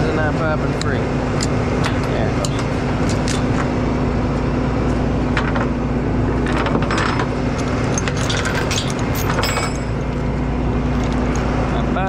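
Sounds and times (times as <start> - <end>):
diesel engine idling: 0.0 - 12.0
metal strap hardware clinking: 1.3 - 3.6, 6.4 - 10.2.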